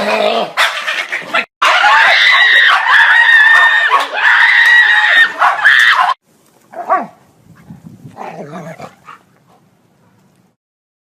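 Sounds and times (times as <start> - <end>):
loud high scream: 1.6 - 6.2
dog yelping: 5.0 - 6.2.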